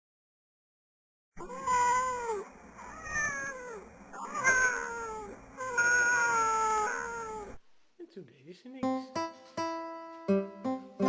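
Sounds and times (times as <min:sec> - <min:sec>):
cats meowing: 0:01.4 - 0:07.6.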